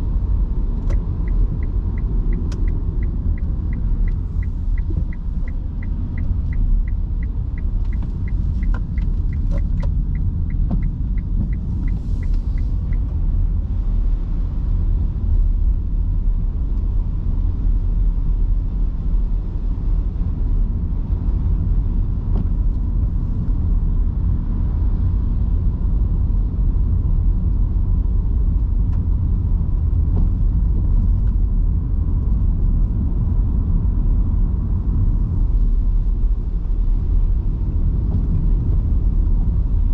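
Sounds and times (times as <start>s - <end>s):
turn signal ticking: 0.0s - 13.9s
road and tyre noise: 0.0s - 39.9s.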